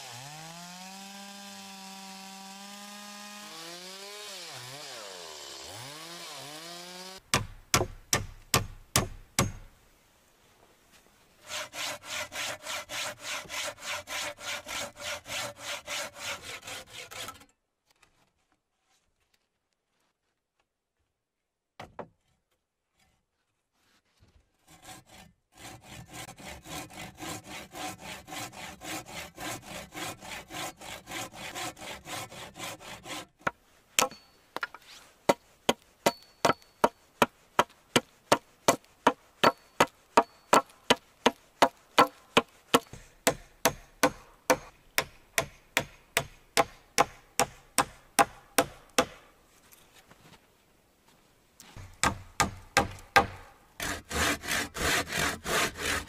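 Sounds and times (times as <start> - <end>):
hand saw cutting log: 0.0 - 9.6, 11.4 - 17.5, 24.6 - 49.3, 51.8 - 56.0
sharp blows on wood: 6.5 - 9.7, 25.1 - 49.3, 51.8 - 56.0.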